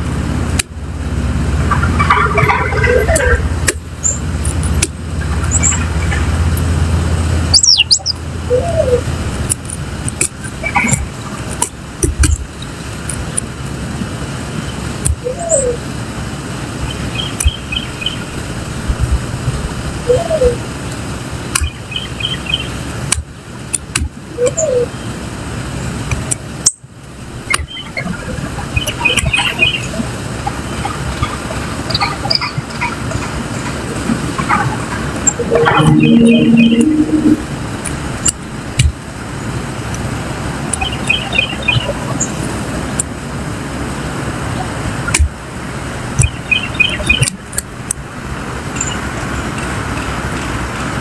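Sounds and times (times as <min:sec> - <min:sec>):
low gliding bird call: 0:07.6 - 0:09.1, 0:15.2 - 0:15.8, 0:20.0 - 0:20.6, 0:27.7 - 0:37.8
steady low rumble: 0:32.5 - 0:38.2.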